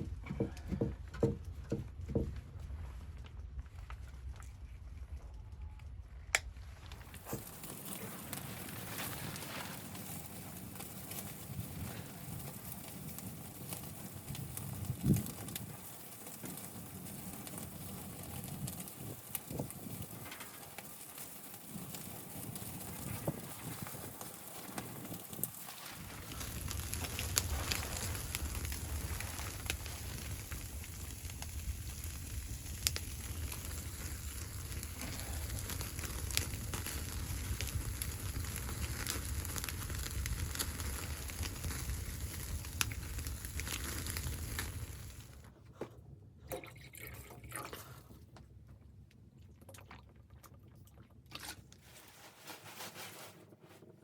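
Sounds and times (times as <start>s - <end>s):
low fire rumble: 0.0s - 45.6s
wood fire crackling and popping: 5.9s - 45.6s.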